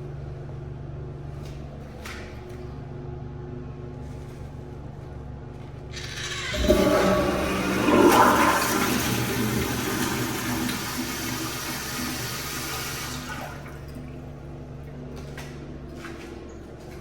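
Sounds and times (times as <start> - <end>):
toilet flushing: 5.9 - 14.4.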